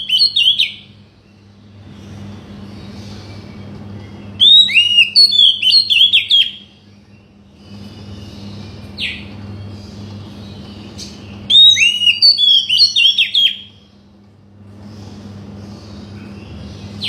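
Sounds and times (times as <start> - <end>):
bird singing whistles: 0.0 - 0.9, 4.0 - 6.8, 11.0 - 13.8.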